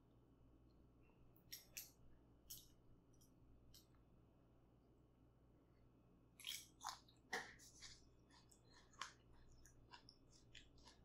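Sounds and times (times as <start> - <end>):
wet chewing clicks: 6.4 - 11.0.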